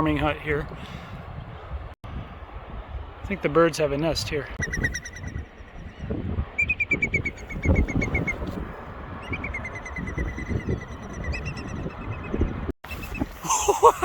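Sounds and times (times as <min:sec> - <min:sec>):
bird alarm calls: 0:04.6 - 0:06.0.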